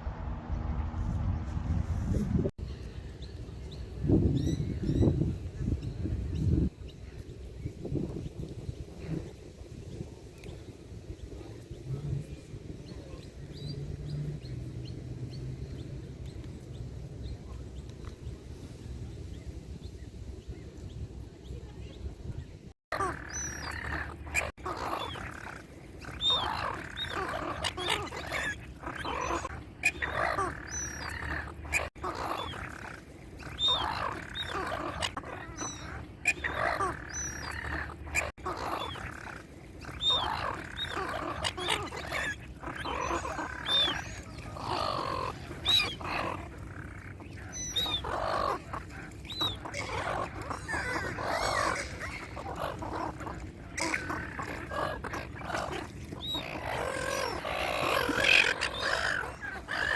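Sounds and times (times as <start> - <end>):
animal calls: 22.9 - 59.9.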